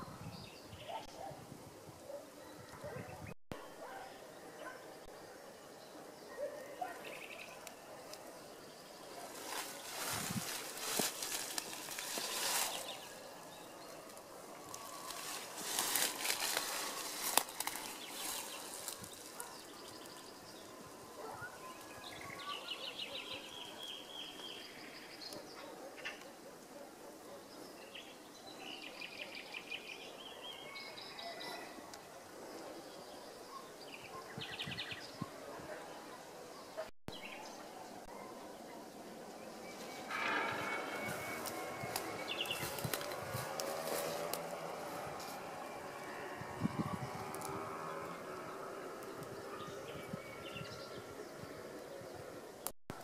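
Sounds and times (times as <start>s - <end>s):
rustling: 9.2s - 20.2s
bird singing rapid high trills: 39.4s - 47.2s.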